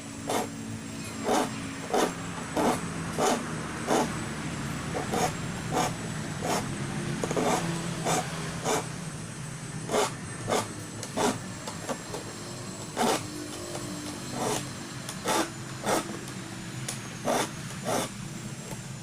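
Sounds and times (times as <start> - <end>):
file rasping on saw teeth: 0.2 - 4.2, 4.9 - 8.9, 9.9 - 11.4, 12.8 - 13.3, 14.2 - 16.2, 17.2 - 18.1.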